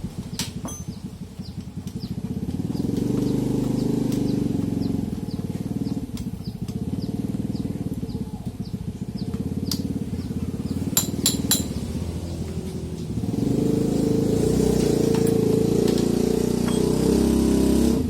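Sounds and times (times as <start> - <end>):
small motorcycle engine running: 0.0 - 18.0
sharp metallic clinks: 0.4 - 1.2, 10.9 - 12.0.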